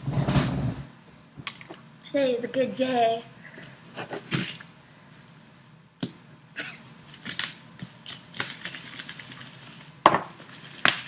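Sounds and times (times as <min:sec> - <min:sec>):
package being handled and opened: 0:07.0 - 0:11.0.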